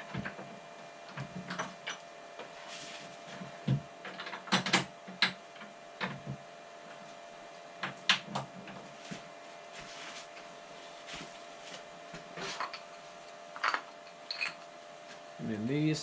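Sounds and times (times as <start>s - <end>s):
faint steady hum: 0.0s - 16.0s
metal parts clicking and knocking: 4.0s - 5.7s, 13.6s - 14.6s.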